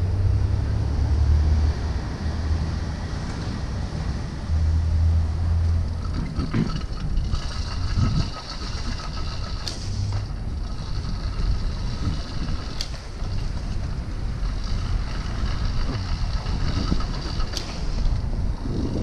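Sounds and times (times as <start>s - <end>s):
mini bike engine rumble: 5.5s - 19.0s.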